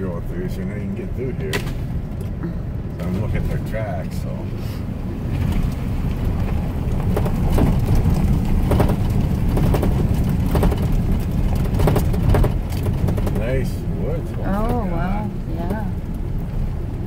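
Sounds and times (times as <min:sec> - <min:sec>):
truck rumbling on dirt track: 0:00.0 - 0:17.0
knocks and rattles over bumps: 0:05.2 - 0:14.8.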